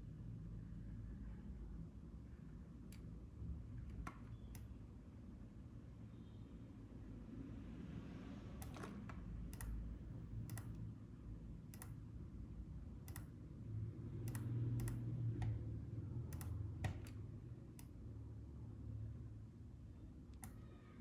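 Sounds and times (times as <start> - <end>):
mouse and keyboard clicks: 13.1 - 13.3, 14.2 - 15.6, 16.3 - 17.2.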